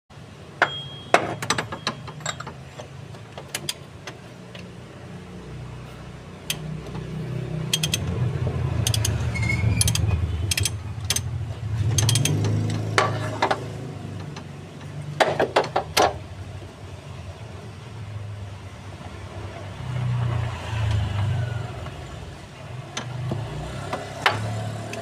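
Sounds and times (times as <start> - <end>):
metal hand tools clinking: 0.6 - 2.7
ratchet clicks: 6.4 - 7.1, 7.7 - 8.2, 8.8 - 11.3, 11.9 - 12.9.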